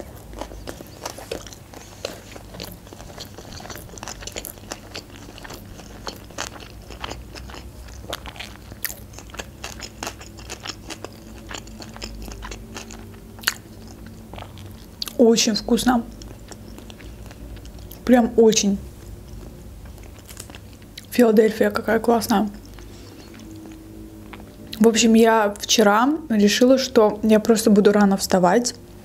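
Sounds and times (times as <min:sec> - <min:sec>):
wet chewing clicks and crunches: 0:00.0 - 0:15.2, 0:16.1 - 0:18.1, 0:19.2 - 0:21.2, 0:22.5 - 0:24.8.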